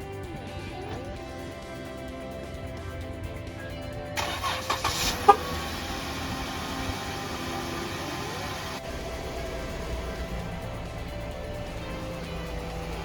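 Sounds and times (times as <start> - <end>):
car engine idling: 0.0 - 13.0
starter cranking: 4.2 - 13.0.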